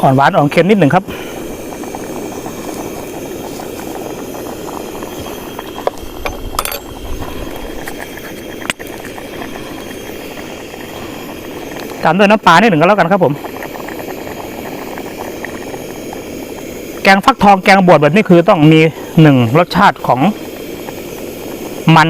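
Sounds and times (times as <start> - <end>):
pot boiling and bubbling: 0.0 - 22.0
sharp clinks: 6.2 - 7.0.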